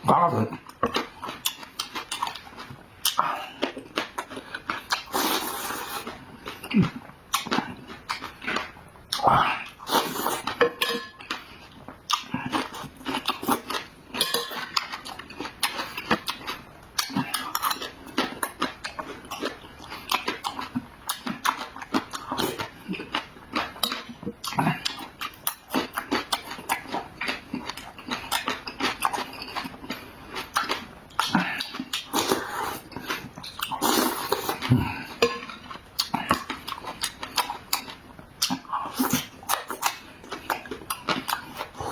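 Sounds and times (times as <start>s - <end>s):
wet chewing and smacking: 0.6s - 10.6s, 11.2s - 41.9s
utensils clinking on dishes: 10.6s - 11.2s, 14.2s - 14.7s.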